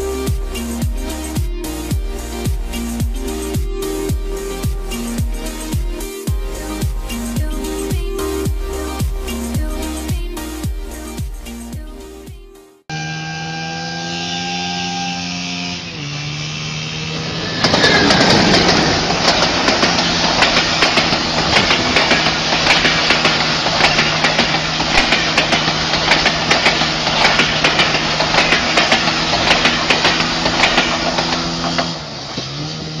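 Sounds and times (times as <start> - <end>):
low engine drone: 0.0 - 12.1, 12.8 - 33.0
rushing water spray: 16.3 - 33.0
train wheels clattering: 17.3 - 32.2.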